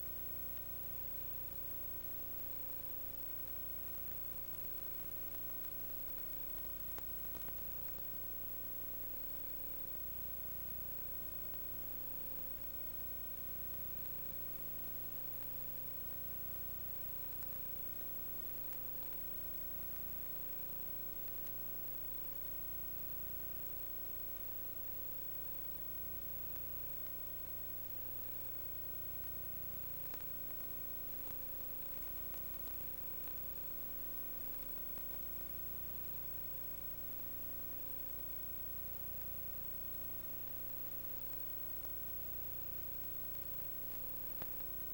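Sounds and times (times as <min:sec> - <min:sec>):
electrical hum and hiss: 0:00.0 - 0:44.9.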